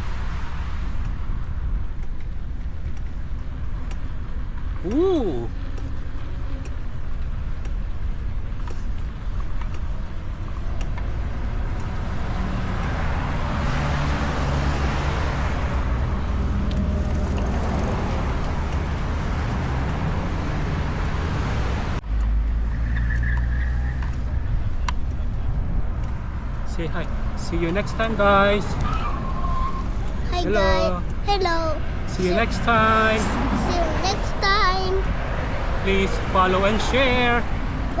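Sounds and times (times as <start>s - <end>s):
road traffic noise: 0.0s - 38.0s.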